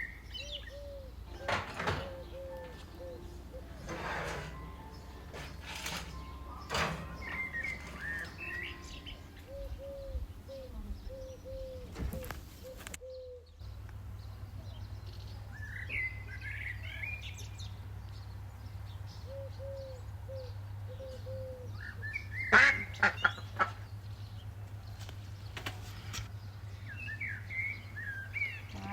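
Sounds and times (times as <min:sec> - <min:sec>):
poultry calling: 0:00.0 - 0:13.4, 0:19.3 - 0:23.9, 0:28.1 - 0:28.9
small birds chirping: 0:00.0 - 0:28.9.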